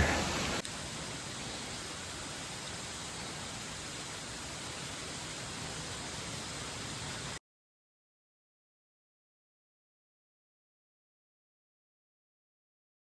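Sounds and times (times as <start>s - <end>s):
steady hiss: 0.0s - 7.4s.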